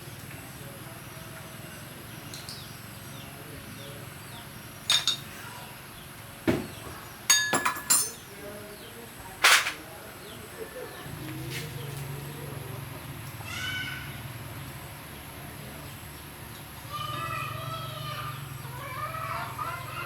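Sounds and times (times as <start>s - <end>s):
metallic clinks and knocks: 4.9s - 5.4s, 7.3s - 8.2s.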